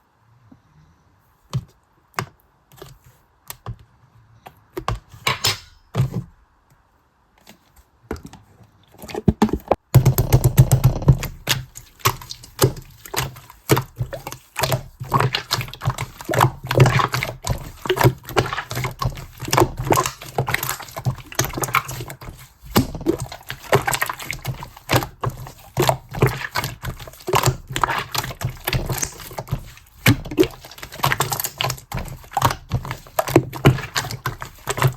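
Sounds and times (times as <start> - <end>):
slime squishing and popping: 10.0 - 34.9.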